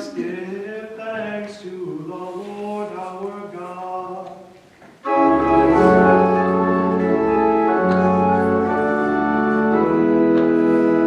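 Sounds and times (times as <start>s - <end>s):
church organ chords: 5.0s - 11.0s.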